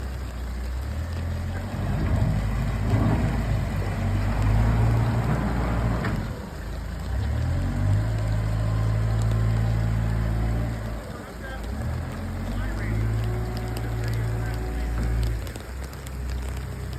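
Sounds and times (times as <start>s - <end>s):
heavy engine running: 0.0s - 16.9s.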